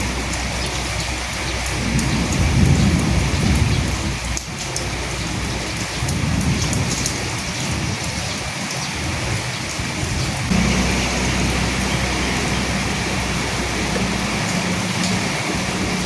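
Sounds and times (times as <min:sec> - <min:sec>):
rain on a hard surface: 0:00.0 - 0:16.0
low rumble: 0:10.5 - 0:16.0.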